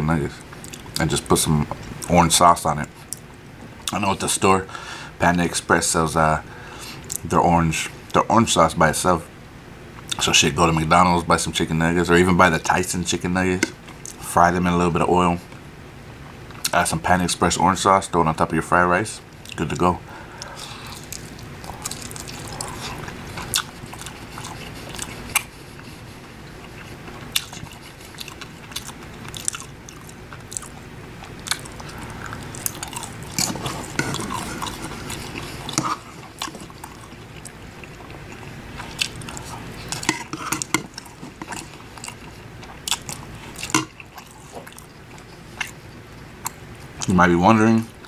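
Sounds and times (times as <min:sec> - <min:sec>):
person chewing with wet mouth sounds: 0:20.4 - 0:47.1
fork scraping a ceramic bowl: 0:33.4 - 0:36.8, 0:39.9 - 0:41.7.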